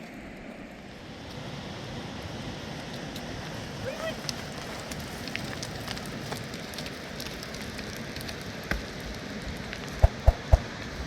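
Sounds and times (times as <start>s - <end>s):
wood fire crackling: 0.3s - 11.0s
sharp pops: 10.0s - 10.8s.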